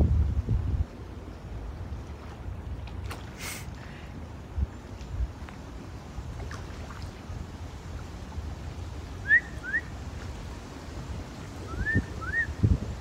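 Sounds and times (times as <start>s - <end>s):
wind rumble on microphone: 0.0s - 13.0s
whistled bird chirps: 9.2s - 9.9s, 11.7s - 12.6s.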